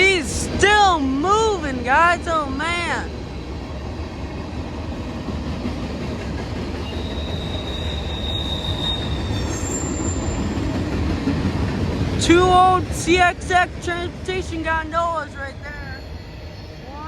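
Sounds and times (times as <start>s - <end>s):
high-pitched wheel squeal: 6.8s - 10.8s.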